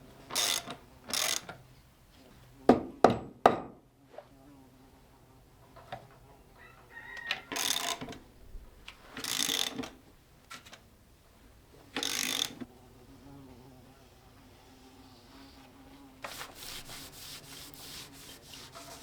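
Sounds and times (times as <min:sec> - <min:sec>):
ratchet wrench rasping: 0:00.3 - 0:01.5, 0:07.5 - 0:08.2, 0:09.2 - 0:10.0, 0:12.0 - 0:12.6.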